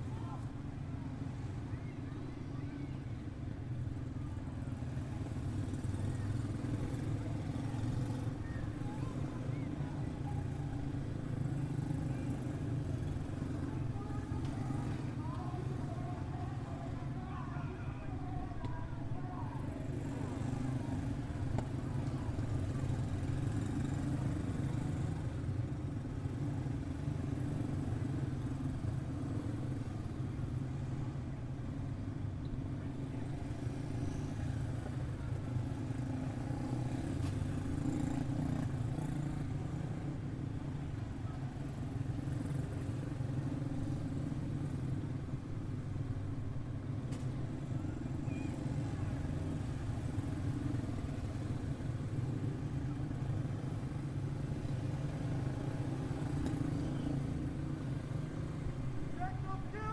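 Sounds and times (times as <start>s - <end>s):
race car engines droning: 32.8s - 59.9s.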